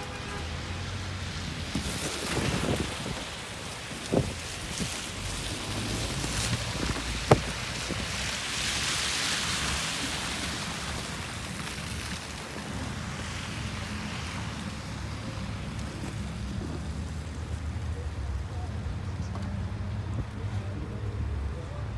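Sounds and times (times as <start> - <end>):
low city rumble: 0.0 - 21.9
snowstorm wind: 1.3 - 17.0.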